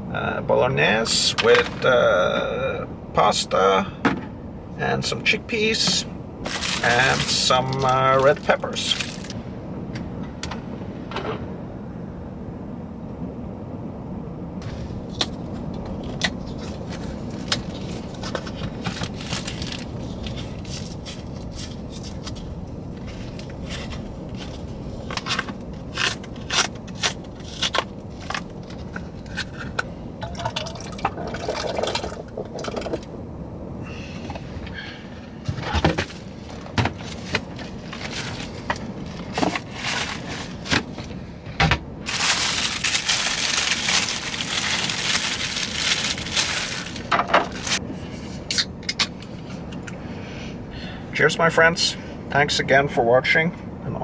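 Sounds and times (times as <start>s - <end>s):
steady low rumble: 0.0s - 54.0s
liquid sounds: 29.6s - 33.1s.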